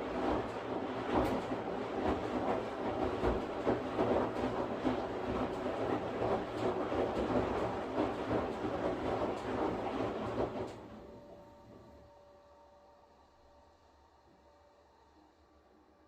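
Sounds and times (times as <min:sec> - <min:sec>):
washing machine drum churning: 0:00.0 - 0:11.8.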